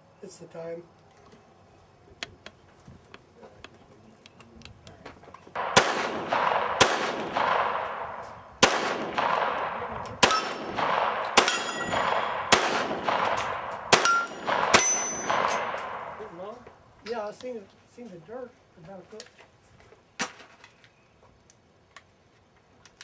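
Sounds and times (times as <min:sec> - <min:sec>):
handgun shots echoing: 0:05.6 - 0:16.4
steel plates ringing: 0:10.2 - 0:12.5, 0:13.4 - 0:16.4.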